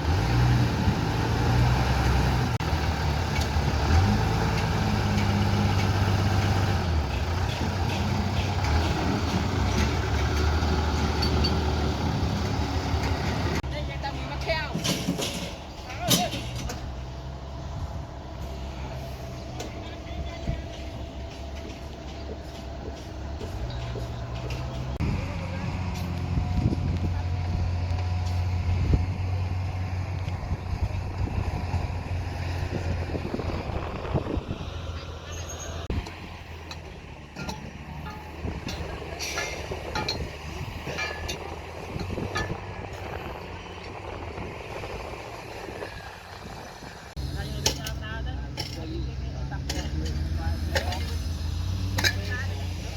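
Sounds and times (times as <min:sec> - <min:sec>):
excavator diesel engine running: 0:00.0 - 0:14.5, 0:16.8 - 0:52.9
metallic clinks and clanks: 0:36.6 - 0:43.1.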